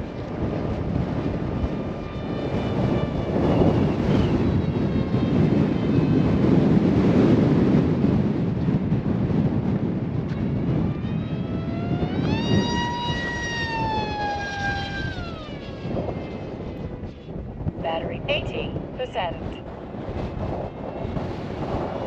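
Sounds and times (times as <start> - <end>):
wind on microphone: 0.0 - 22.0
electric motor whine: 10.4 - 17.3.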